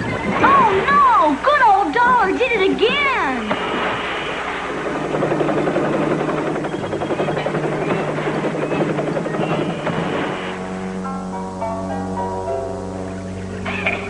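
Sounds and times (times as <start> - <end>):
cartoon helicopter rotor chopping: 0.0 - 14.0
low hum: 0.0 - 14.0
background music: 10.4 - 14.0.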